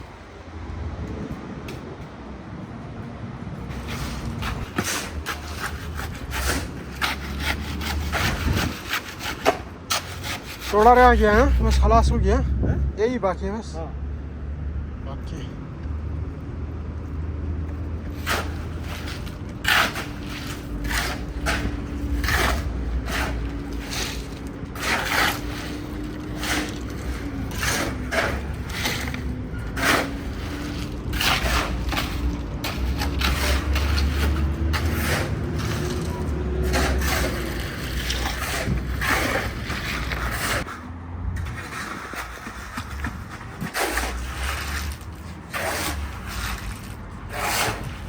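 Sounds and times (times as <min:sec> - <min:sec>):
hand tool scraping a surface: 0:03.7 - 0:12.0, 0:18.1 - 0:48.0.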